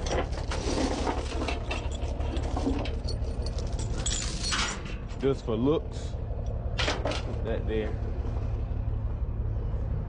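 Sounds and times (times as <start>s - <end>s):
chains clinking and rattling: 0.0s - 5.2s.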